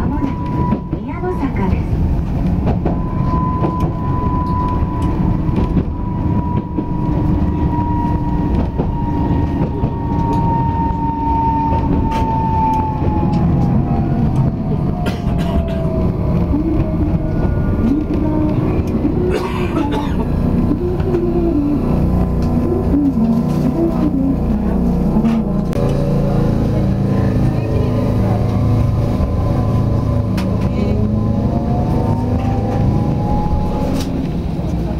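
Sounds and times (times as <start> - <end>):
tram motor whine: 0.0 - 34.9
tram rumble: 0.0 - 34.9.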